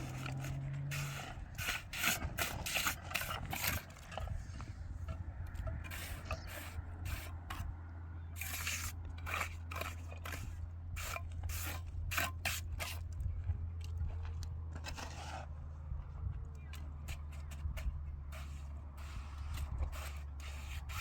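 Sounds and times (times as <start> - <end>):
scraping strokes: 0.0 - 7.7, 8.4 - 13.1, 14.8 - 15.5, 17.0 - 21.0.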